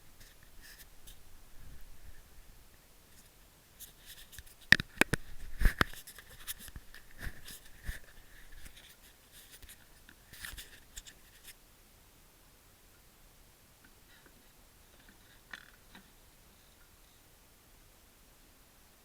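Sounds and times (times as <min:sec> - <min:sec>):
sharp clicks knocks and scrapes: 0:03.2 - 0:11.5.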